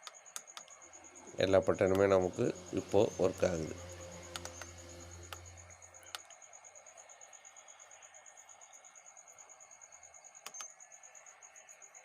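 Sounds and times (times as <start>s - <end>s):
low hum: 0.7s - 6.9s.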